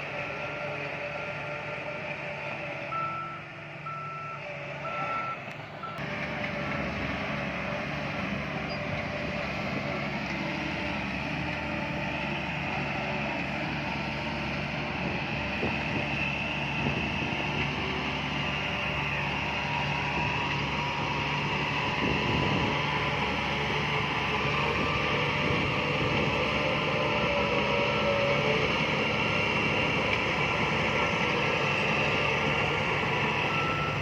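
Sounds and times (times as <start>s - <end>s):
diesel engine running: 0.0s - 34.0s
reversing alarm beeping: 2.9s - 6.0s, 33.4s - 34.0s.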